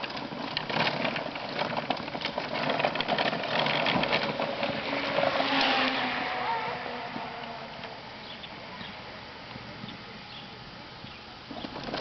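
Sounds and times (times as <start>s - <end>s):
lawn mower rattling: 0.0s - 9.0s, 11.0s - 12.0s.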